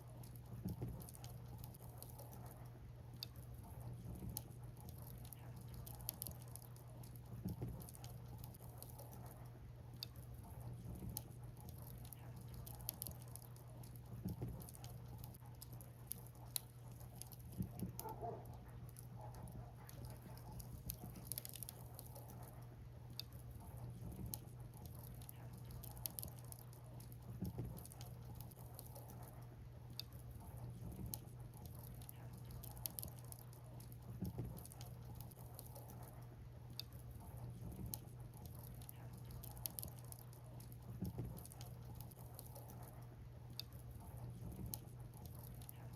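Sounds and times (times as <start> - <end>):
bonfire crackling and popping: 18.8 - 29.4.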